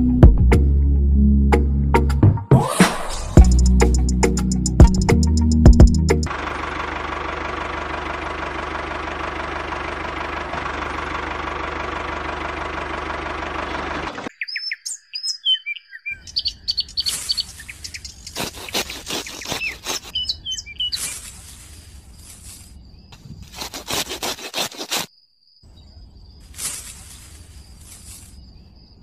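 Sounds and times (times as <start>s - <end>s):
birds chirping: 13.5s - 23.4s
sickle snipping grass: 18.3s - 20.2s, 20.9s - 22.8s, 23.4s - 25.1s, 26.5s - 28.4s.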